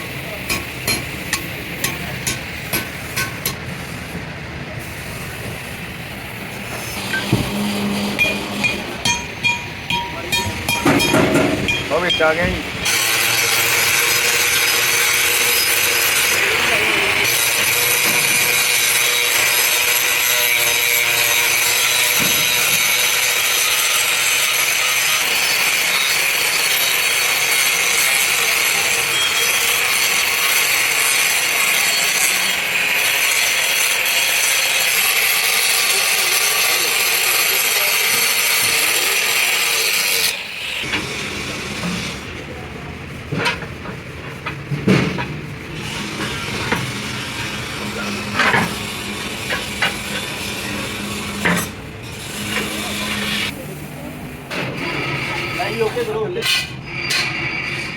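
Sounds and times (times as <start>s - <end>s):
power tool grinding metal: 6.8s - 42.2s, 45.8s - 53.5s.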